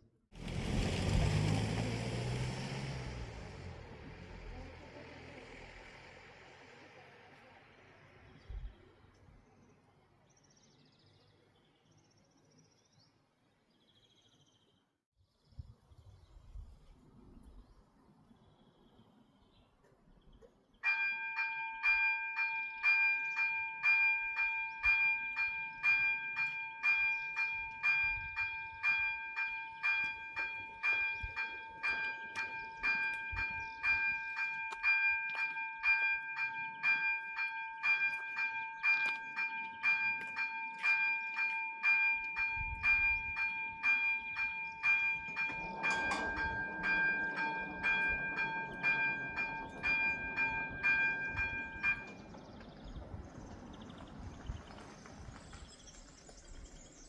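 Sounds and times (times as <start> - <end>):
approaching train rumble: 0.3 - 9.1, 42.1 - 57.0
level crossing warning bells: 20.8 - 54.5.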